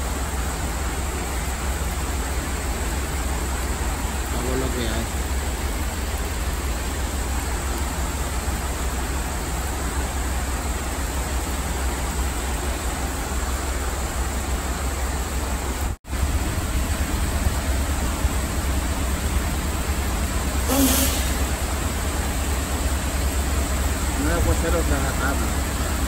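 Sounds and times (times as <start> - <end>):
heavy rain on pavement: 0.0 - 26.0
deep rumble: 15.8 - 26.0.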